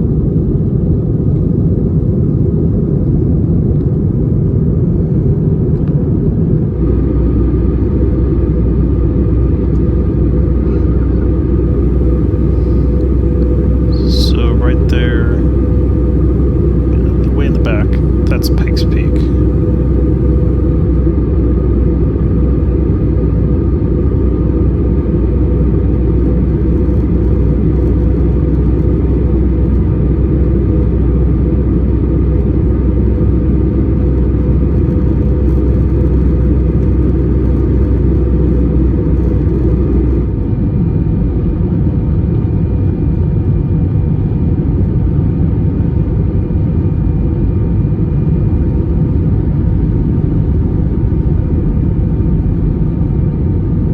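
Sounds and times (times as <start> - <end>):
aircraft engine rumble: 5.0 - 53.9
faint steady hum: 11.4 - 22.1, 47.3 - 53.9.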